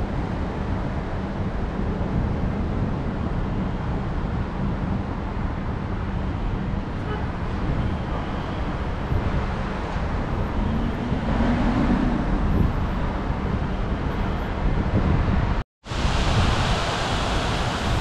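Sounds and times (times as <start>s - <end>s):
passing vehicle hum: 6.2s - 15.6s
heavy rain hiss: 15.8s - 18.0s
tyre noise on wet road: 15.9s - 18.0s.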